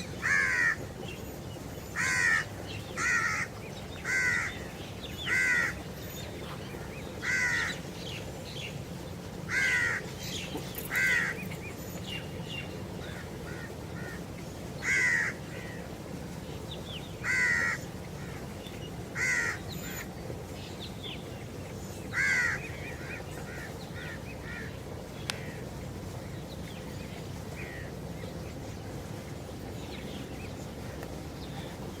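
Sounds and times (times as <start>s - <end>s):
bird calling: 0.0s - 8.4s
steady low hum: 0.0s - 32.0s.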